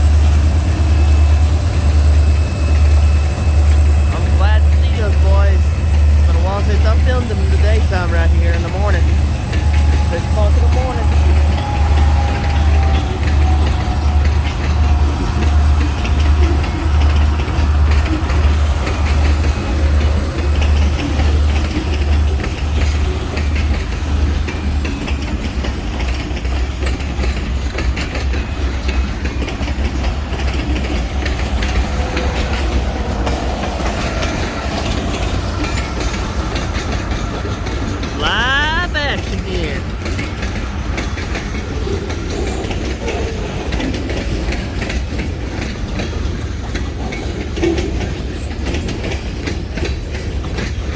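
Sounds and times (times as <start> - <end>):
wheels clacking over rail joints: 0.0 - 38.2.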